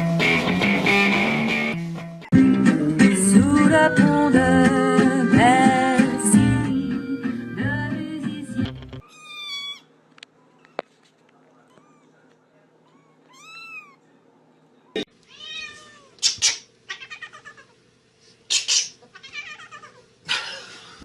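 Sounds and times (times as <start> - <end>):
pop song with guitar and singing: 2.3 - 9.0
cat meowing: 9.0 - 9.9, 11.6 - 14.0, 15.3 - 16.2, 16.9 - 17.7, 19.1 - 20.0.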